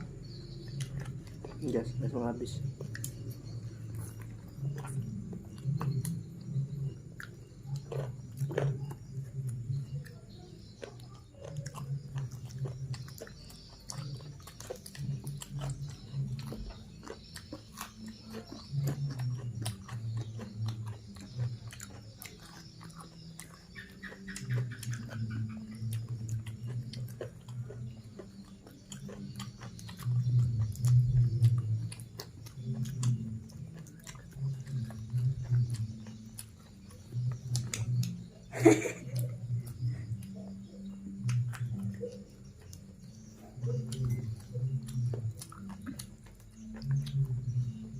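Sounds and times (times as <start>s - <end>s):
person chewing: 0.0s - 47.9s
wet mouth clicks: 10.8s - 47.7s.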